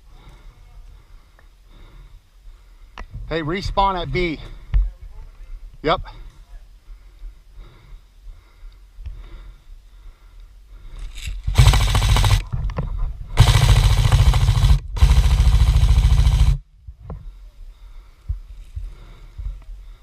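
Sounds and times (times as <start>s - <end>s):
airsoft gun firing bursts: 11.5s - 12.6s, 13.4s - 16.6s.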